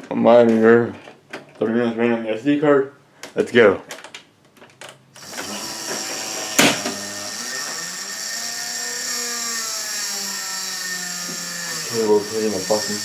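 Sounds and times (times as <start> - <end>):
computer fans whirring: 5.2 - 13.0.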